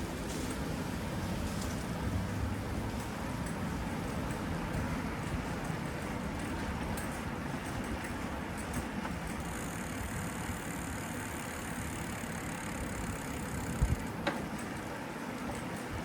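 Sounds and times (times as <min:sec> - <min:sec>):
vehicle engine running: 0:00.0 - 0:16.0
steady high hiss: 0:08.9 - 0:16.0.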